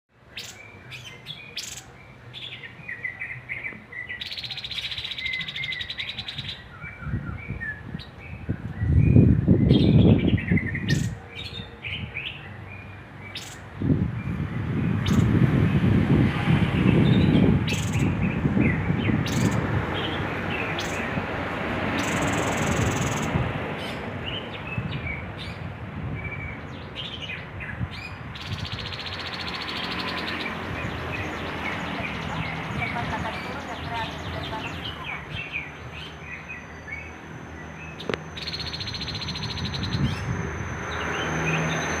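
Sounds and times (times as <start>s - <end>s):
bird chirps: 0.3s - 13.6s, 26.2s - 42.0s.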